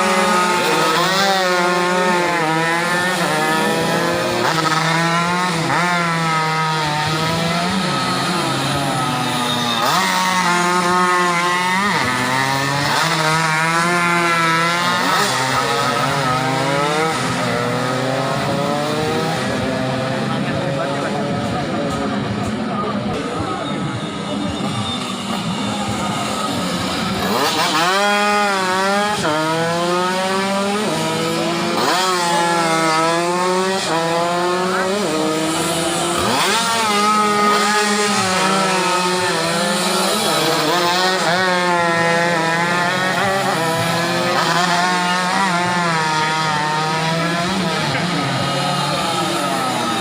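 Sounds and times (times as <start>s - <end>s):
motorcycles revving and racing past: 0.0s - 50.0s.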